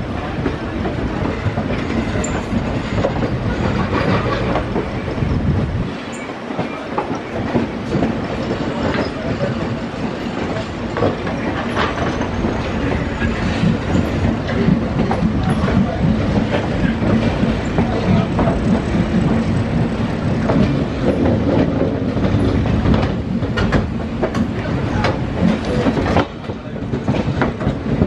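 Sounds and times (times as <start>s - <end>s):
train rumble: 0.0s - 28.0s.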